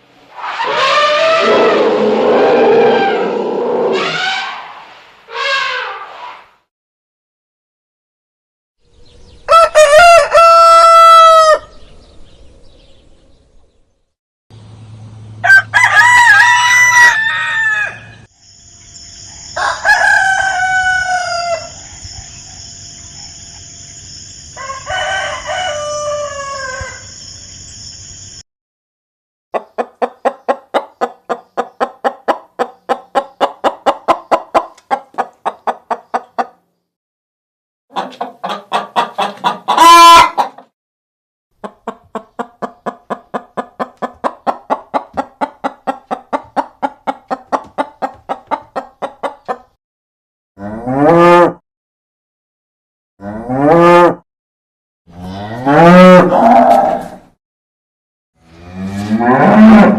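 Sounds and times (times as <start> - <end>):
roosters crowing: 0.4 - 4.6, 9.4 - 11.8, 15.4 - 18.3, 19.4 - 22.1, 24.5 - 27.2, 38.4 - 40.5, 55.2 - 57.1, 58.8 - 59.9
chickens clucking: 29.6 - 36.6, 37.9 - 40.7, 41.6 - 49.8.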